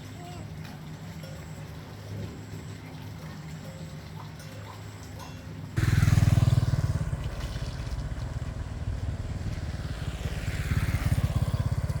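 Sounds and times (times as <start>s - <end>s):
small engine running: 5.8s - 12.0s.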